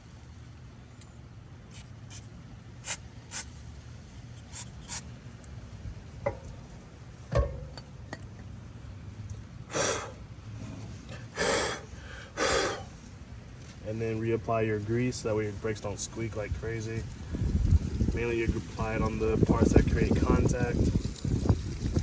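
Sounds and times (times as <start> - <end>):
aerosol spray hissing: 2.8 - 3.5, 4.5 - 5.0
knock of parts being handled: 7.3 - 8.3.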